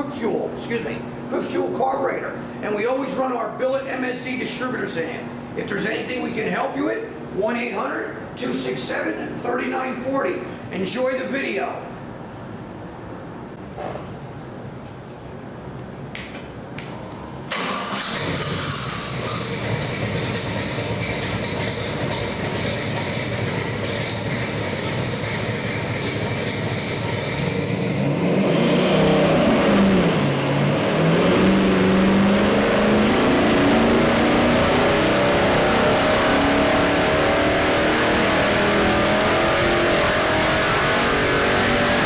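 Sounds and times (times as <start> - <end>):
car engine idling and revving: 17.7 - 42.0.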